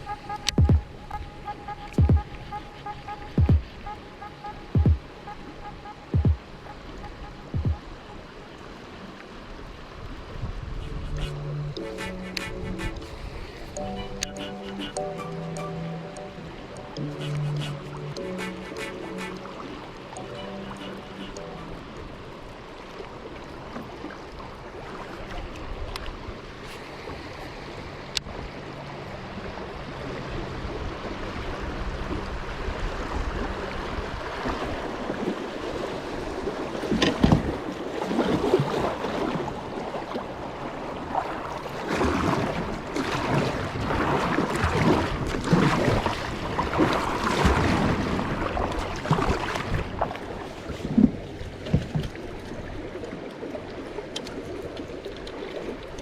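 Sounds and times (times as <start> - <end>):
creek water rushing and splashing: 0.0 - 56.0
wind buffeting microphone: 10.0 - 11.4.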